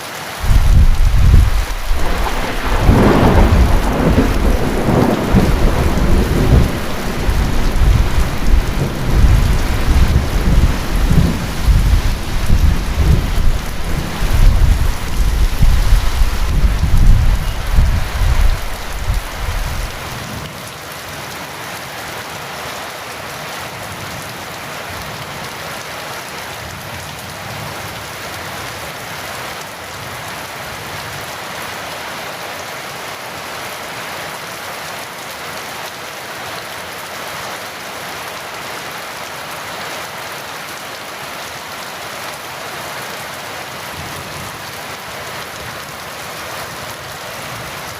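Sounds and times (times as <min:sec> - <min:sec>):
heavy rain: 0:00.0 - 0:47.9
thunder rumbling: 0:00.4 - 0:20.2.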